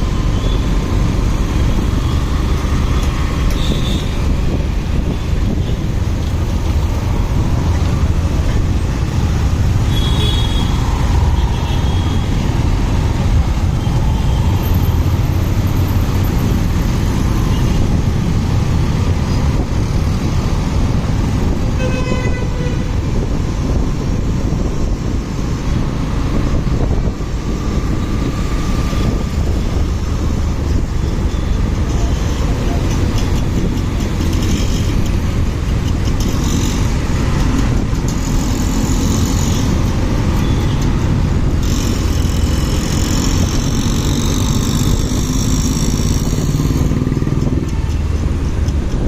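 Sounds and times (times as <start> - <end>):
wind noise: 0.0 - 49.0
vehicle horn honking: 21.8 - 22.9.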